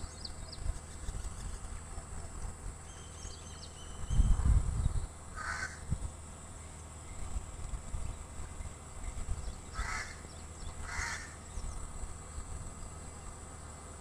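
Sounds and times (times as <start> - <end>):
small birds chirping: 0.0 - 5.8, 6.4 - 13.9
wind buffeting microphone: 3.9 - 5.2, 5.8 - 6.2
crow cawing: 5.4 - 5.9, 9.7 - 10.2, 10.8 - 11.4.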